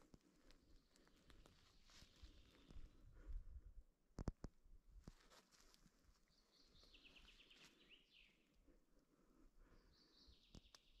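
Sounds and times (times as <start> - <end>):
faint songbird singing: 0.6 - 3.0, 6.2 - 11.0.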